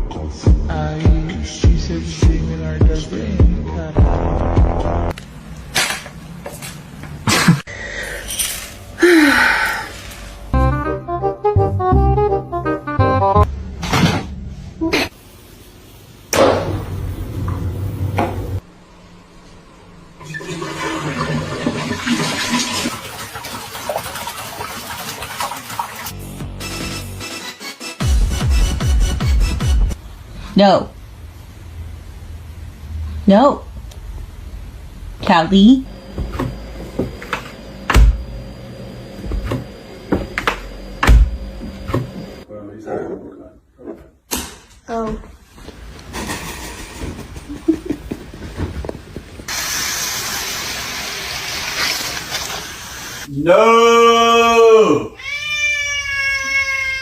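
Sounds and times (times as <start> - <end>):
toilet flushing: 20.1 - 26.4, 49.5 - 53.3.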